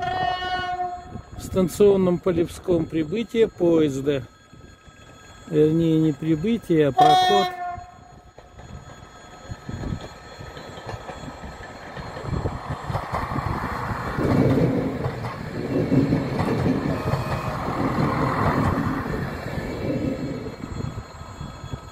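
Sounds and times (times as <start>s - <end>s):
train wheels rolling over rails: 8.1s - 21.9s.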